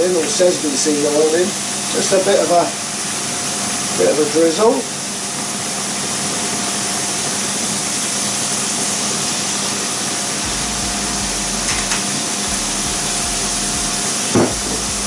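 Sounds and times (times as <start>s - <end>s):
faint steady hum: 10.4s - 15.0s.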